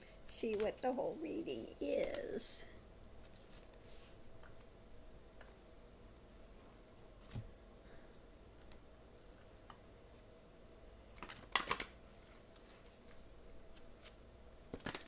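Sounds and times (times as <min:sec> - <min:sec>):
cards clicking and tapping: 0:11.2 - 0:12.0, 0:14.0 - 0:15.0.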